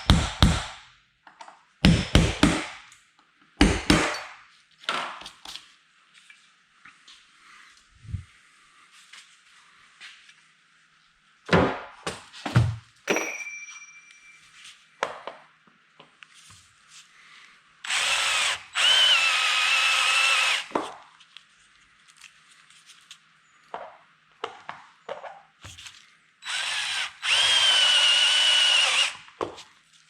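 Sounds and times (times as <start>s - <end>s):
sharp metal knocks: 3.6s - 4.4s
power drill drilling metal: 17.9s - 20.7s, 26.4s - 29.3s.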